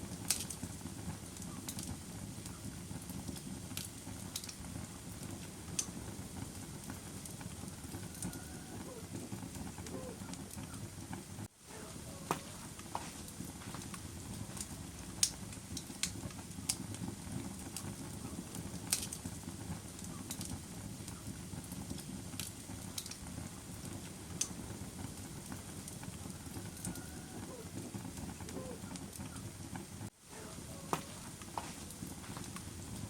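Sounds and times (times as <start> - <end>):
fire crackles and pops: 0.0 - 33.0
low rush of burning fire: 0.0 - 33.0.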